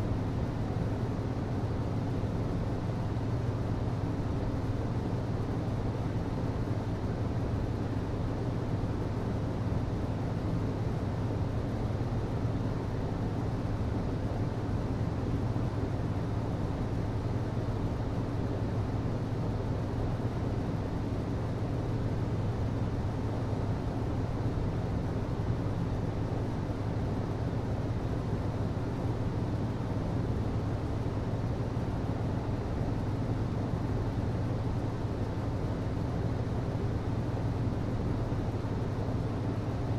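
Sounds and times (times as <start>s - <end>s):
hvac system humming: 0.0s - 39.9s.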